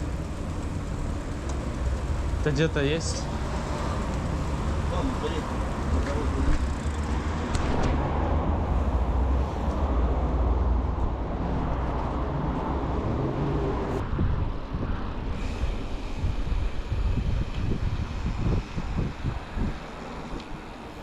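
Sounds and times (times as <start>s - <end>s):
road noise: 0.0s - 21.0s
wind buffeting microphone: 10.7s - 21.0s.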